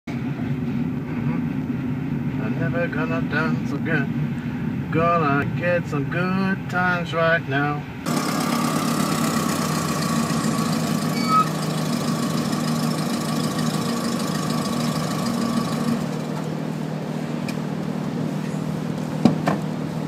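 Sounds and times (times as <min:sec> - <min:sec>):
car engine running: 0:08.0 - 0:20.0.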